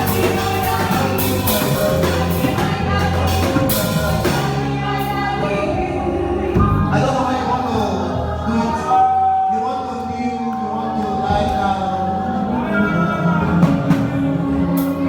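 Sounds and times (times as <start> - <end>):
drum kit hits: 0.0 - 5.0
gospel band music: 0.0 - 15.0
person singing: 0.0 - 15.0.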